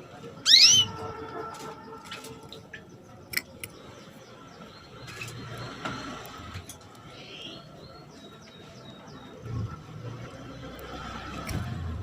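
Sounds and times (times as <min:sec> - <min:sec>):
canary call: 0:00.4 - 0:01.1.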